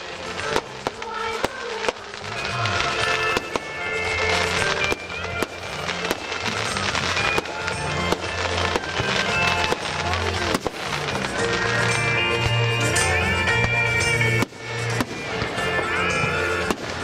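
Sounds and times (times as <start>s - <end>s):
fireworks bangs: 0.0s - 17.0s
music with bass line: 2.6s - 17.0s.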